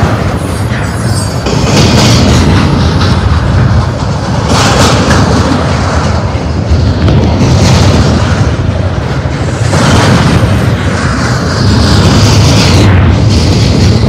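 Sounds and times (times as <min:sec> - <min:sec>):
freight train wheels rumbling on rail: 0:00.0 - 0:14.0.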